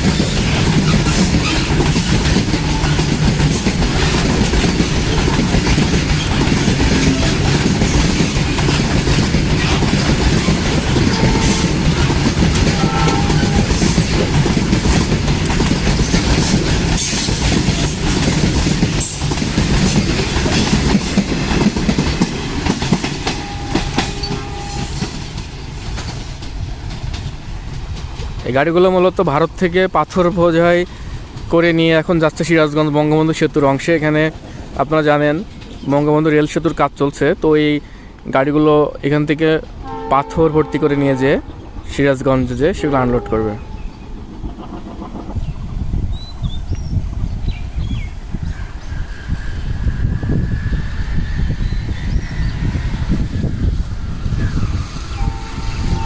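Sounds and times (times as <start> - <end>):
freight wagons clattering over rails: 0.0 - 37.0, 41.4 - 46.6.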